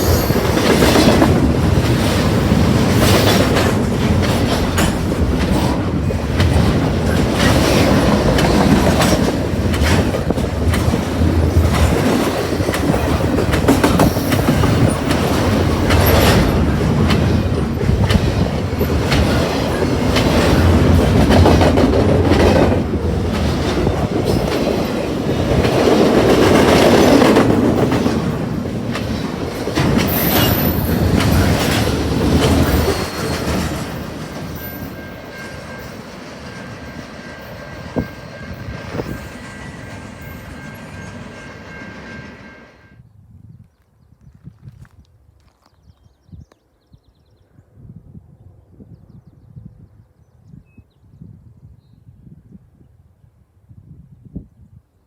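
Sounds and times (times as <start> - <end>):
wheels clacking over rail joints: 0.0 - 42.6
train cars rolling past: 0.0 - 43.0.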